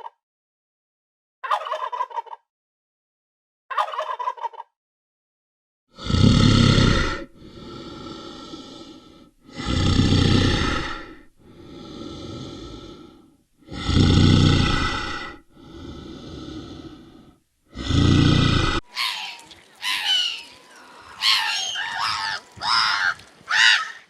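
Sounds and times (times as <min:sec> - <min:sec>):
animal rasping breaths: 0:07.1 - 0:18.9.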